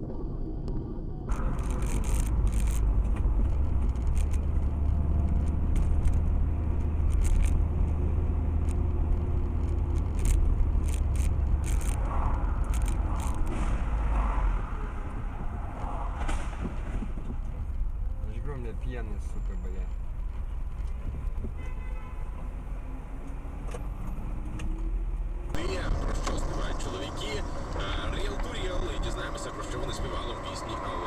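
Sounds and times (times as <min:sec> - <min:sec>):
car engine and road rumble: 0:00.0 - 0:31.0
sharp ticks and rattles: 0:01.3 - 0:13.5.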